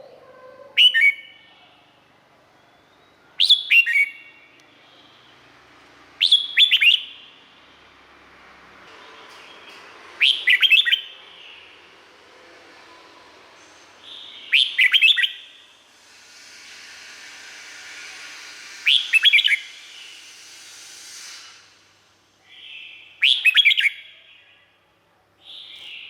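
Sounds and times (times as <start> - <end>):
bird singing whistled notes: 0.8 - 1.6, 2.6 - 5.3, 6.2 - 7.4, 10.2 - 11.7, 14.0 - 15.6, 18.8 - 21.3, 22.4 - 24.6
steady hiss: 11.8 - 23.6.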